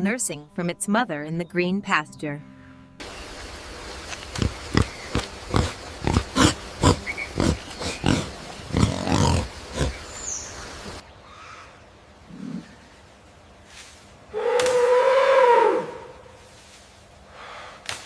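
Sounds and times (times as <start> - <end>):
rough animal huffs: 4.8 - 10.0.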